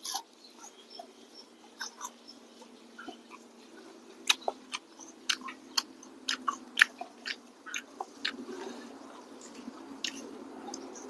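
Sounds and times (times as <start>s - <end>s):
person chewing crispy fish: 4.2s - 11.0s.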